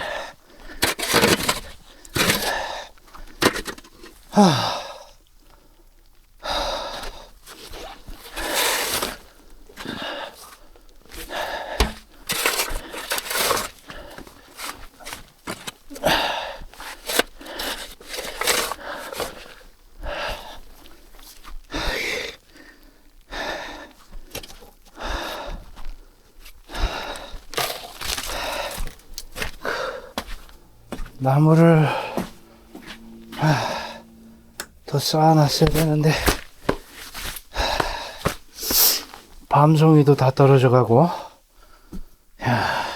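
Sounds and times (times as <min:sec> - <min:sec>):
crunching and scraping: 0:00.0 - 0:04.3, 0:07.5 - 0:19.7, 0:25.8 - 0:39.4
man panting: 0:25.0 - 0:26.0, 0:26.7 - 0:34.3, 0:37.5 - 0:39.0, 0:42.4 - 0:42.9.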